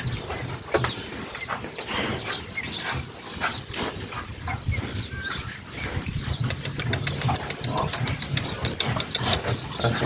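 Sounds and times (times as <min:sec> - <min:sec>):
pigs grunting: 0:05.9 - 0:10.0.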